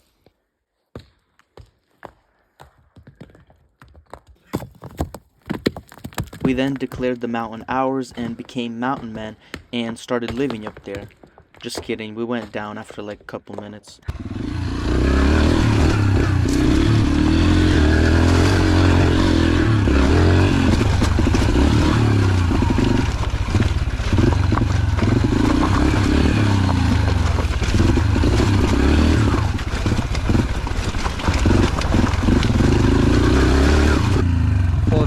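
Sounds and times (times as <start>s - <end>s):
bike rattling over rocks: 4.4s - 9.3s, 17.9s - 34.3s
dirt bike engine revving: 14.1s - 35.0s.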